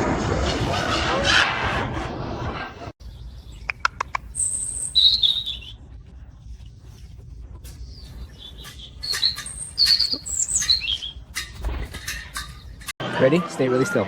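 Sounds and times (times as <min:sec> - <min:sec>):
parrot chirping and trilling: 0:03.5 - 0:05.8, 0:07.8 - 0:12.9.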